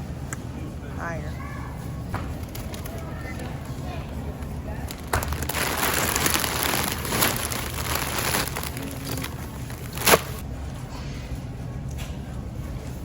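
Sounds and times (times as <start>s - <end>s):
rustling and crinkling handling: 2.2s - 10.4s.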